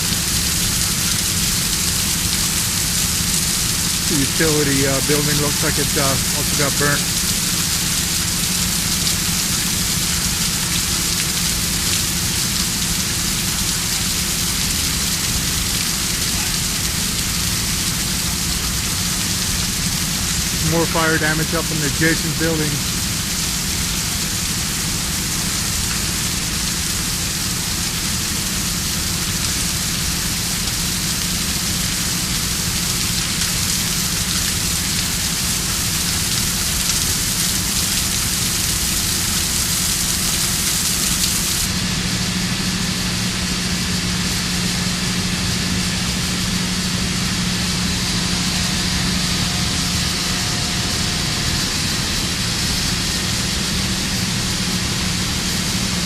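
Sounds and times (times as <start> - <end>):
steady hissing noise: 0.0 - 56.0.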